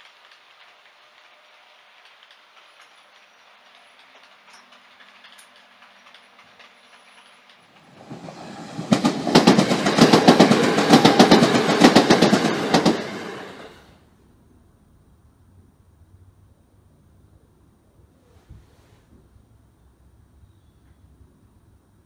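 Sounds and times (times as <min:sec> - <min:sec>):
model train wheels clicking: 0:00.0 - 0:13.9.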